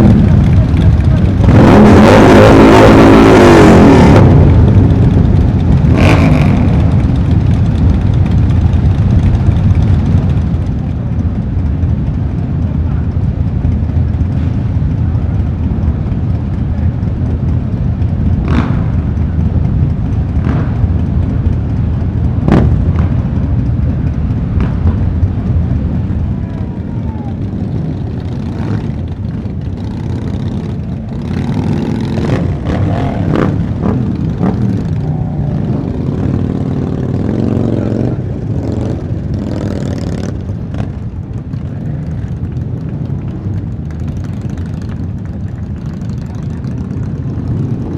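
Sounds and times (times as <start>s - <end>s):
motorcycle engines rumbling: 0.0s - 47.9s.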